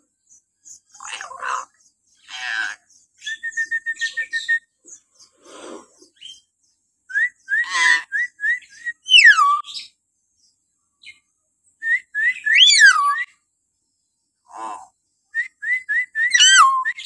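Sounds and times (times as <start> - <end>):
harsh rasping bird note: 5.3 - 6.1.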